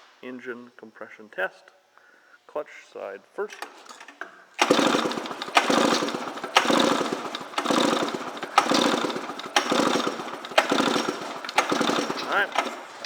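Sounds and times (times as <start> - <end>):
recoil starter rope pulls: 3.5 - 13.0.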